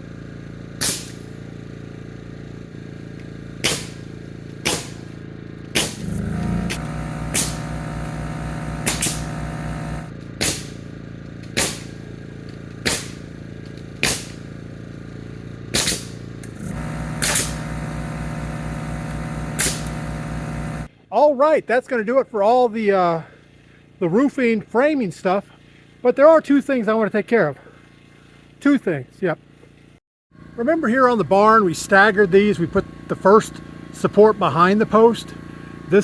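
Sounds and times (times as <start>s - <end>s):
air compressor running: 0.0s - 20.9s, 29.4s - 36.0s
nail gun firing: 0.8s - 1.4s, 3.6s - 12.1s, 12.8s - 13.4s, 14.0s - 14.5s, 15.7s - 20.8s.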